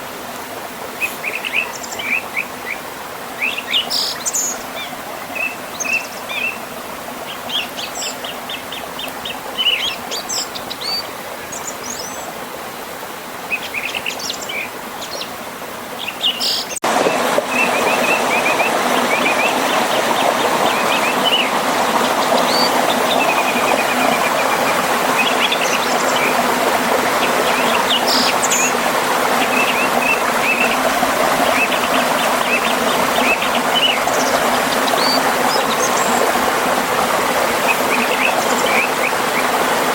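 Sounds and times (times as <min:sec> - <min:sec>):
flowing river: 0:00.0 - 0:39.9
river rushing over waterfall: 0:16.8 - 0:39.9.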